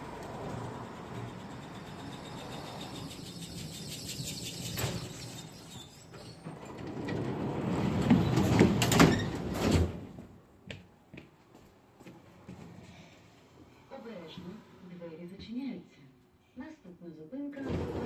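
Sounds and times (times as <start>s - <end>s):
tram doors rattling and clacking: 0.0s - 10.4s, 17.6s - 18.0s.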